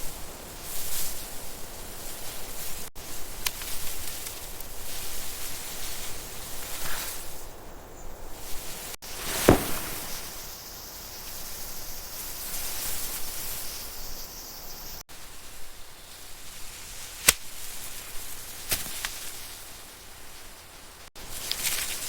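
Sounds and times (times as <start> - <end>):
steady hiss: 8.4 - 17.0
rustling: 8.5 - 10.6.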